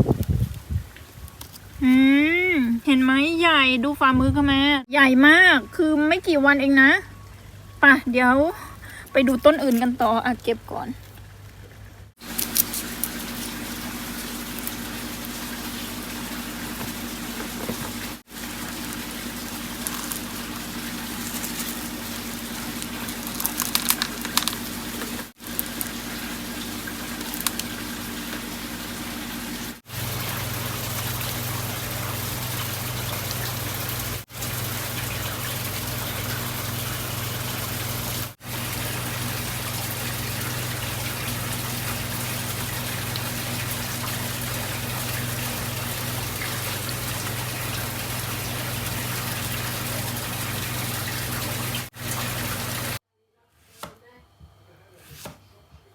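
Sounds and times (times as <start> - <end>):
low pump hum: 0.0 - 53.0
water running and splashing: 9.1 - 53.0.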